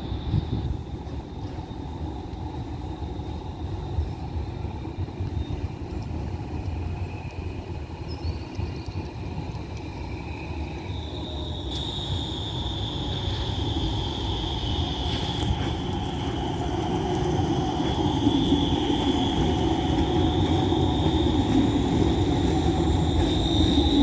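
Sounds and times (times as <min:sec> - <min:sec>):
tram rumble: 0:00.0 - 0:24.0
high-pitched whine: 0:07.8 - 0:24.0.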